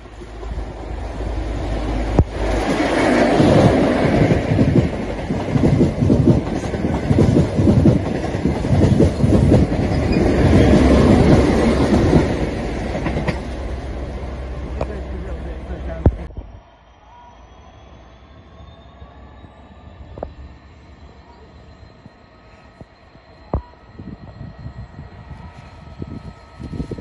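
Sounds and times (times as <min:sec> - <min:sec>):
train wheels clattering over joints: 0:02.5 - 0:13.6.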